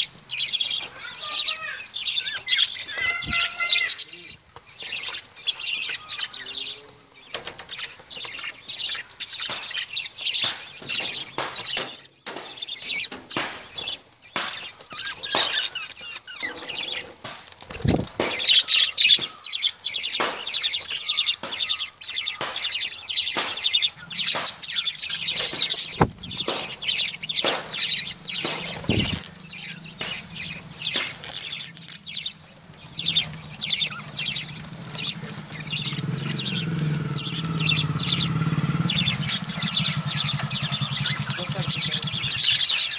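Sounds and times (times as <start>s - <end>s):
lovebirds chirping: 0.0s - 42.9s.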